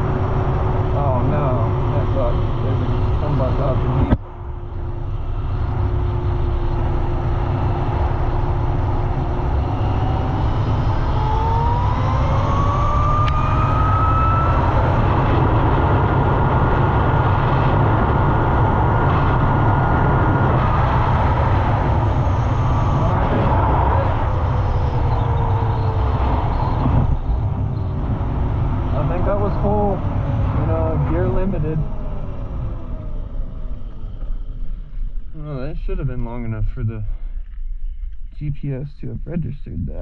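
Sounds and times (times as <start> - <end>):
wind noise: 0.0 - 40.0.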